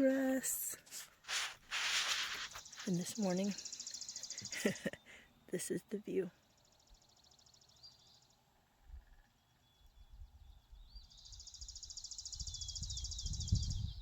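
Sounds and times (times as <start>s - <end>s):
wind on microphone: 12.3s - 14.0s.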